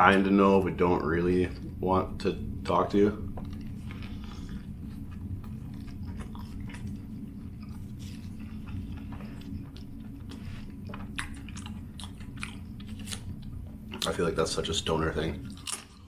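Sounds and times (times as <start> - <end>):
steady low hum: 0.0 - 16.0
close chewing with wet mouth sounds: 3.4 - 14.2, 15.4 - 16.0.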